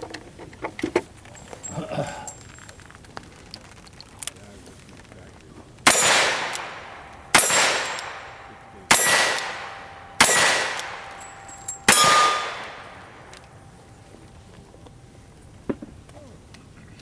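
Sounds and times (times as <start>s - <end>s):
gunshots: 5.8s - 13.7s
steel targets ringing: 5.8s - 15.4s.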